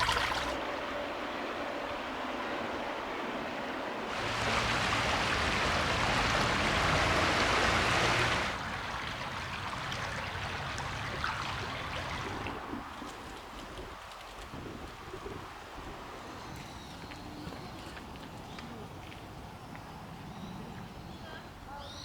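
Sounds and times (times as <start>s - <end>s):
running spring water splashing: 0.0s - 0.6s, 4.1s - 15.4s.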